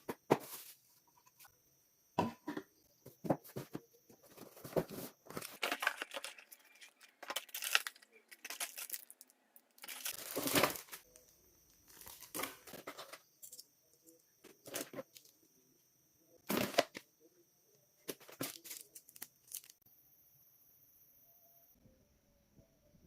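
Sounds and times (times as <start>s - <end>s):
packaging tearing and rustling: 4.9s - 11.1s, 18.2s - 19.8s.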